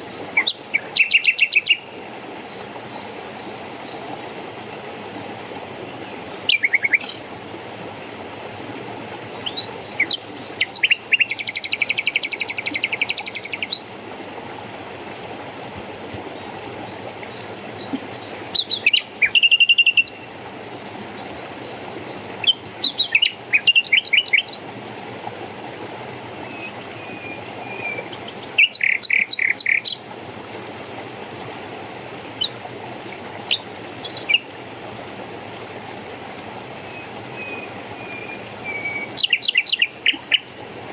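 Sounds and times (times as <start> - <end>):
songbirds calling: 0.0 - 4.2, 4.8 - 7.4, 9.4 - 13.9, 16.2 - 20.4, 21.0 - 24.7, 26.3 - 30.0, 33.4 - 34.6, 36.6 - 40.7.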